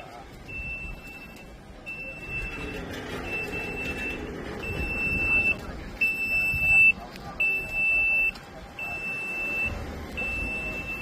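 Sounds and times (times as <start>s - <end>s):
diesel engine running: 0.1s - 6.2s
truck warning beeper: 0.1s - 11.0s.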